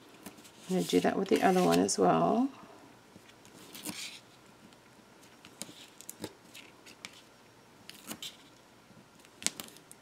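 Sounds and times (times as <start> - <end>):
cardstock rustle: 0.2 - 2.0.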